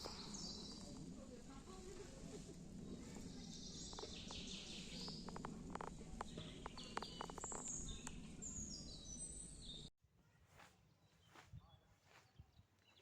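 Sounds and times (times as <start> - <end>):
songbirds singing: 0.0 - 9.9, 10.9 - 13.0
steady low background noise: 0.0 - 9.9.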